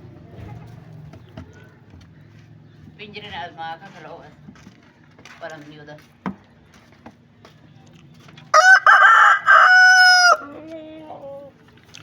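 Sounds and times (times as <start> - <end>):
rooster crowing: 8.5 - 10.6
chickens calling: 8.6 - 10.7.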